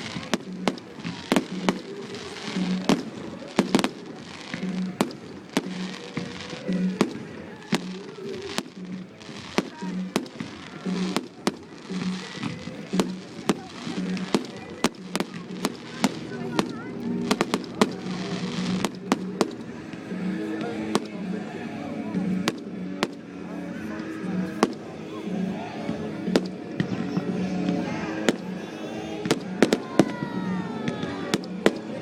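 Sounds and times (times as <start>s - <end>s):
fireworks bangs: 0.0s - 19.7s, 24.5s - 24.9s, 29.2s - 32.0s
fireworks crackling: 0.0s - 21.3s, 22.0s - 25.0s, 25.6s - 32.0s
music with a steady beat: 0.0s - 32.0s.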